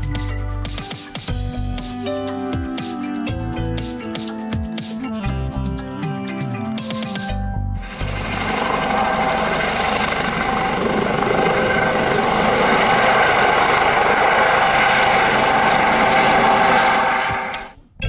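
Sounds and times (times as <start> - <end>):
helicopter rotor chop: 8.0 - 17.7.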